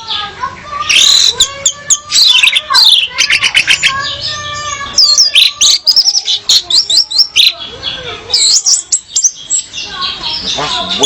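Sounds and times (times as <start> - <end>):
thrush chirping and whistling: 5.0 - 7.6.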